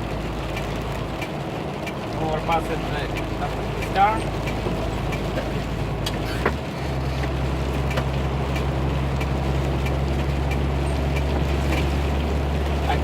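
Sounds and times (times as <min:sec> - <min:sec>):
rain ticking on windshield: 0:00.0 - 0:13.0
truck engine droning: 0:00.0 - 0:13.0.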